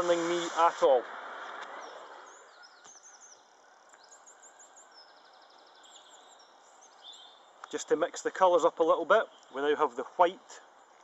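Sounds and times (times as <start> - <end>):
faint steady hiss: 0.0 - 11.0
small birds chirping: 0.0 - 11.0
bird trill: 1.8 - 7.8, 9.2 - 9.9.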